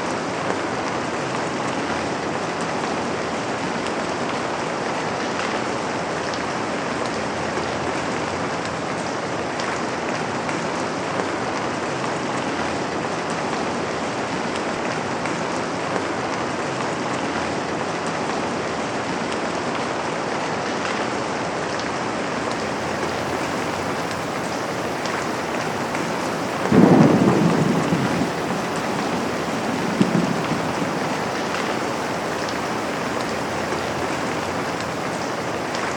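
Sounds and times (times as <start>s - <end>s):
rain falling on a window: 21.8s - 35.9s
thunderclap rumbling: 22.3s - 35.9s.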